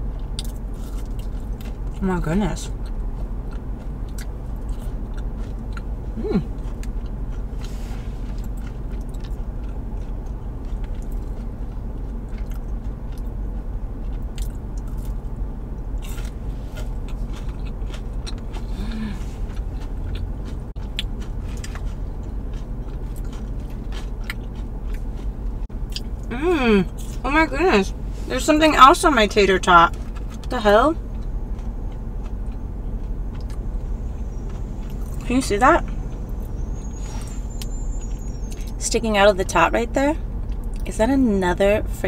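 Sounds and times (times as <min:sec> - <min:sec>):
steady low hum: 0:00.0 - 0:42.0
person biting and chewing crunchily: 0:00.1 - 0:02.0, 0:02.7 - 0:26.3, 0:29.9 - 0:35.2.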